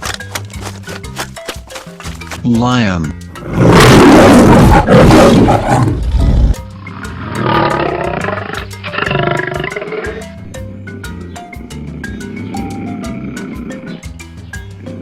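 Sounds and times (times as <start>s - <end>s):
background music: 0.0s - 15.0s
lion roaring: 3.4s - 10.3s, 11.1s - 13.9s.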